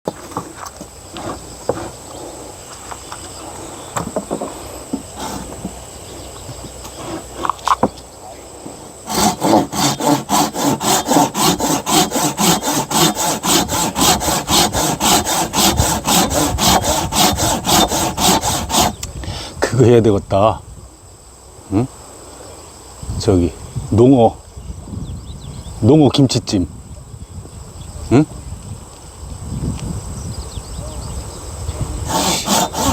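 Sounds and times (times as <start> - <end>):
hand saw cutting wood: 5.1 - 5.8, 9.0 - 19.0, 32.0 - 32.9.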